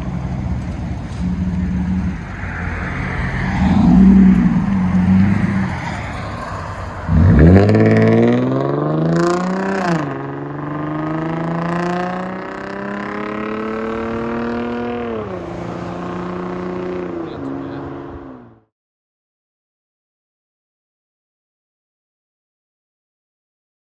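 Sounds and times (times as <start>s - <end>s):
car engine accelerating hard: 0.0s - 18.7s.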